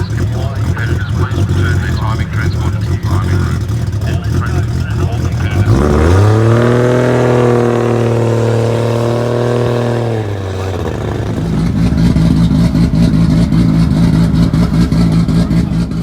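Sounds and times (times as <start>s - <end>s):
car engine revving: 0.0s - 16.0s
engine crackles: 0.0s - 16.0s.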